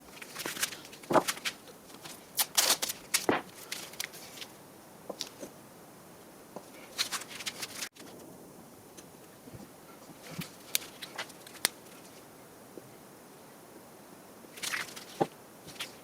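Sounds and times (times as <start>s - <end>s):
wood scraping rustles: 0.0s - 4.5s.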